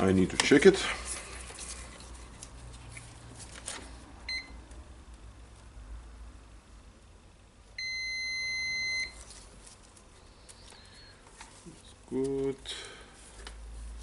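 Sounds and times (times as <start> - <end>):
multimeter beeping: 7.8 - 9.2.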